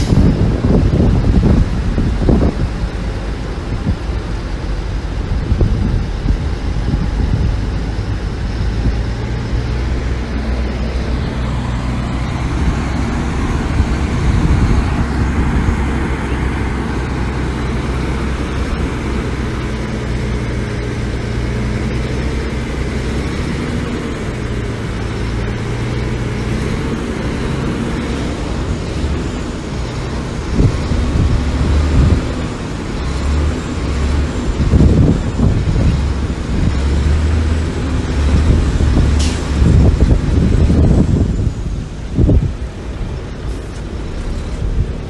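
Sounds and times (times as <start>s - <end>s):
heavy diesel engine droning: 0.0s - 45.0s.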